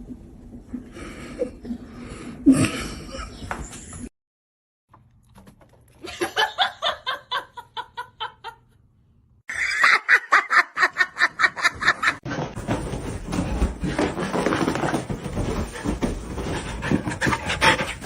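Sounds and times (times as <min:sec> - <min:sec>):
high-pitched fit of laughter: 0:09.5 - 0:12.2
people laughing: 0:09.5 - 0:12.2.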